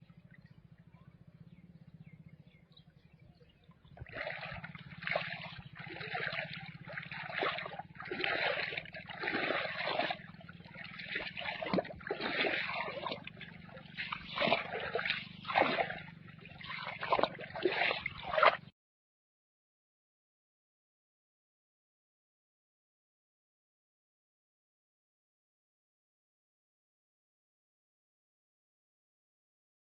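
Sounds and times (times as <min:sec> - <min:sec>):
low steady hum: 0:00.0 - 0:18.6
water trickling and splashing: 0:03.6 - 0:18.7.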